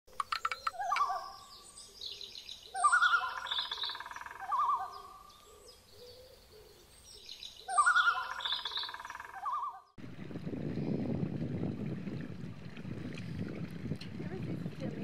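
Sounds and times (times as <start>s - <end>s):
high bird chirping: 0.3s - 9.9s
warbling whistled bird calls: 0.3s - 10.0s.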